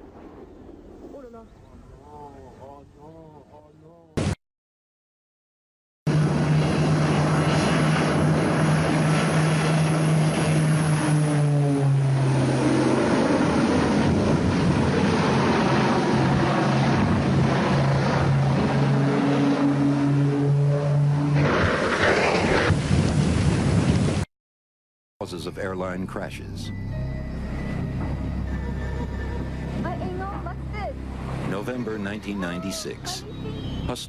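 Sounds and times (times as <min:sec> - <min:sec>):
aircraft engines droning: 0:06.1 - 0:22.0, 0:25.2 - 0:34.0.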